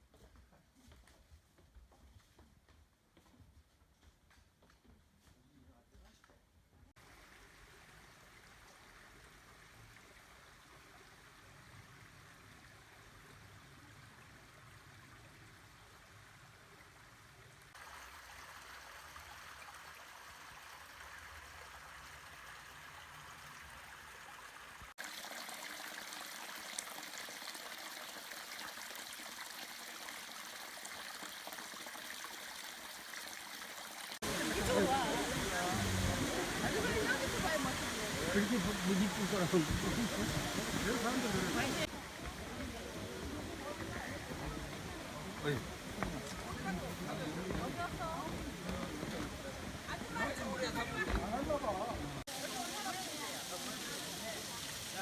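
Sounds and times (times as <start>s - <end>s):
stream rushing over rocks: 17.7s - 55.0s.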